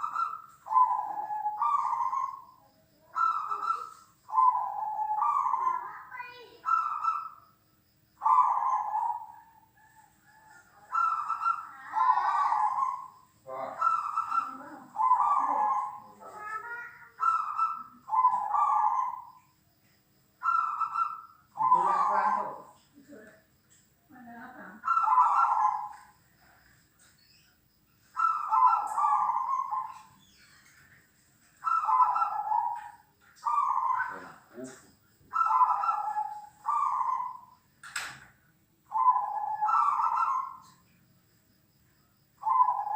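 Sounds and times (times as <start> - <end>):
dove cooing: 0.0 - 7.4, 8.2 - 19.3, 20.4 - 22.7, 24.6 - 26.2, 28.2 - 30.6, 31.6 - 37.5, 38.9 - 40.8, 42.4 - 42.9.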